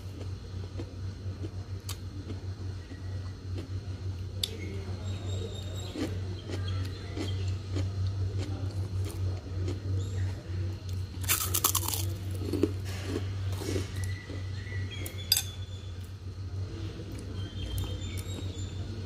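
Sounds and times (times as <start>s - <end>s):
crunch of fried food bitten: 0.0s - 4.6s, 5.6s - 15.2s
low hum: 0.0s - 19.0s
chewing: 0.1s - 4.6s, 5.6s - 15.2s.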